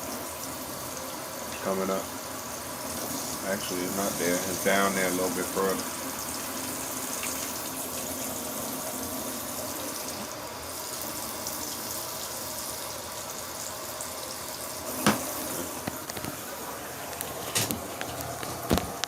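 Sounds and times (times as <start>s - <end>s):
water running into plastic tub: 0.0s - 19.0s.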